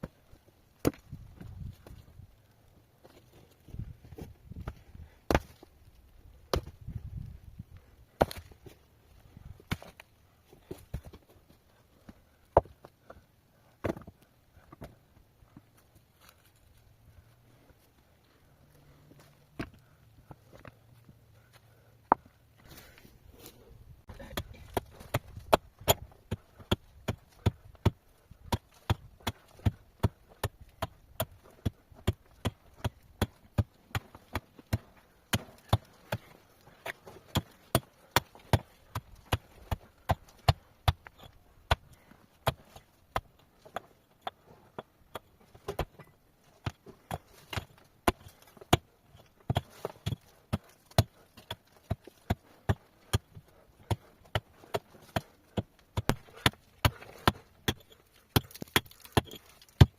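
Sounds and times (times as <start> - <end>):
hand tool chipping rock: 24.1 - 59.9.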